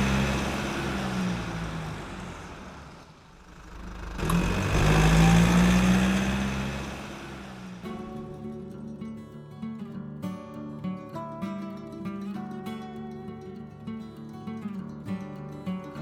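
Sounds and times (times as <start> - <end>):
vehicle engine running: 0.0 - 8.7.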